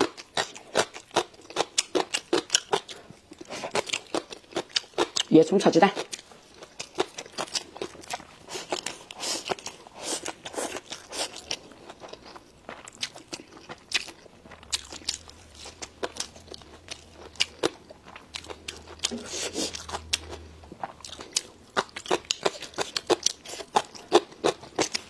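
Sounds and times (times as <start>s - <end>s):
person chewing food: 0.0s - 5.3s, 6.0s - 25.0s
faint low hum: 6.0s - 25.0s.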